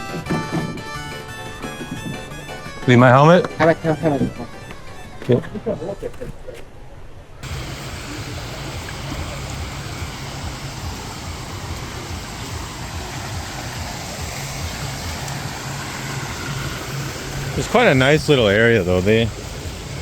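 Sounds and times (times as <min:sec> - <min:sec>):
choppy low rumble: 0:07.4 - 0:20.0
steady rushing noise: 0:07.4 - 0:20.0.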